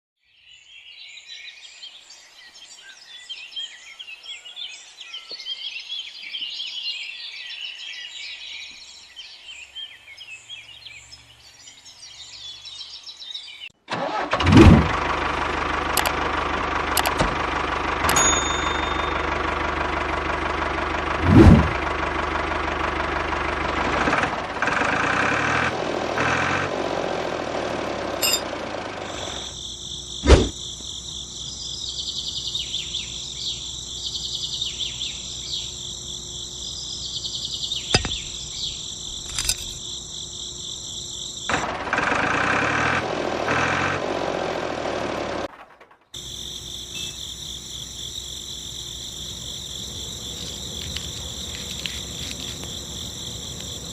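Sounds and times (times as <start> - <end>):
crickets chirping: 0.6 - 13.6, 28.2 - 41.6, 46.1 - 53.9
small motor rattling hum: 14.4 - 29.6
sharp clicks: 16.0 - 16.2, 17.0 - 17.4, 39.2 - 39.8.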